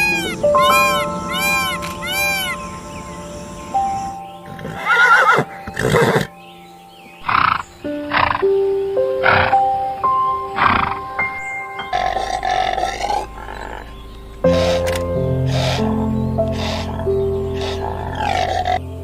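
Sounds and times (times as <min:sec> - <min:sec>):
loud animal calls: 0:00.0 - 0:06.4, 0:11.8 - 0:18.8
background music of held notes: 0:00.0 - 0:19.0.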